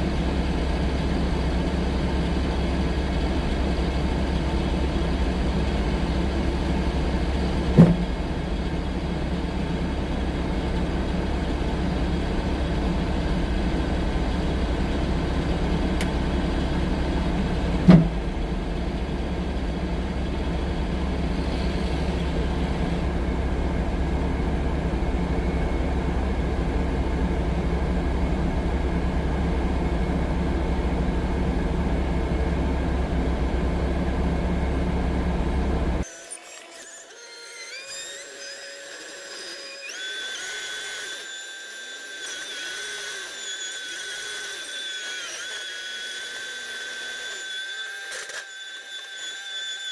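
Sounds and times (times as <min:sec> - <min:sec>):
loader engine running: 0:00.0 - 0:36.0
loud knocks: 0:07.7 - 0:08.3, 0:17.7 - 0:18.4.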